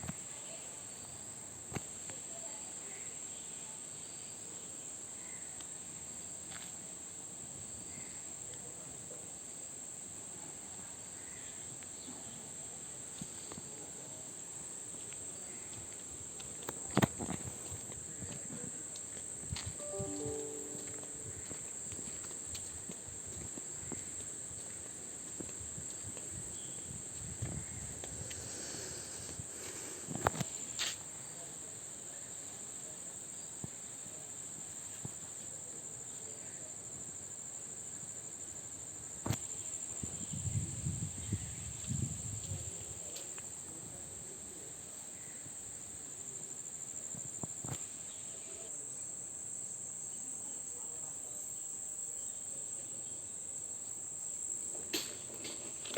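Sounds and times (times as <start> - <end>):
crickets chirping: 0.0 - 55.9.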